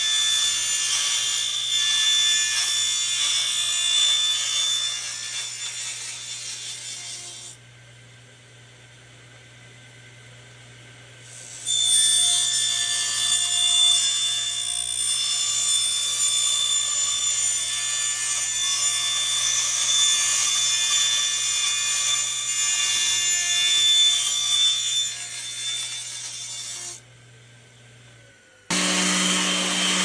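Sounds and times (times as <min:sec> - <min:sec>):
electric power tool running: 0:27.2 - 0:30.0.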